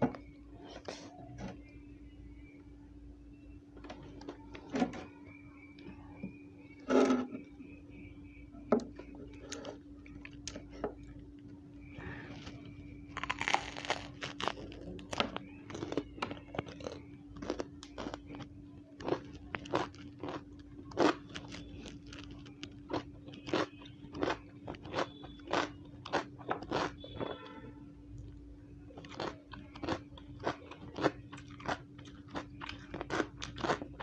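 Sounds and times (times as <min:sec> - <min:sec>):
crisp chewing crunches: 0:09.3 - 0:11.2, 0:11.8 - 0:27.4, 0:28.2 - 0:34.0.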